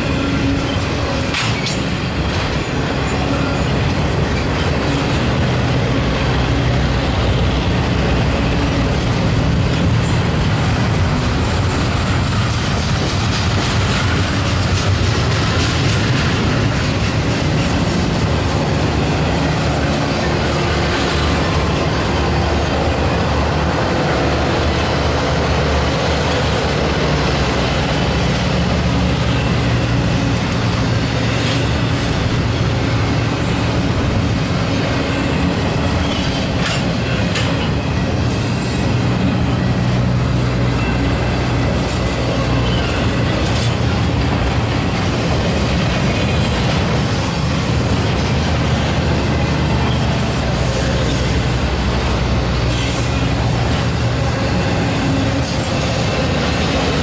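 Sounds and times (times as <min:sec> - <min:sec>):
freight train wheels rumbling: 0:00.0 - 0:57.0
sharp clanks: 0:00.7 - 0:02.5.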